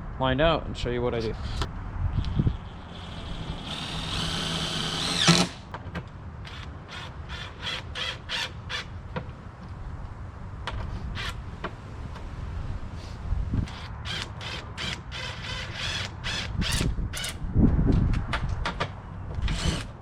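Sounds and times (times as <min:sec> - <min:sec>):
power drill driving screw: 0:02.2 - 0:05.7, 0:06.5 - 0:08.9, 0:13.7 - 0:17.4, 0:19.5 - 0:19.9.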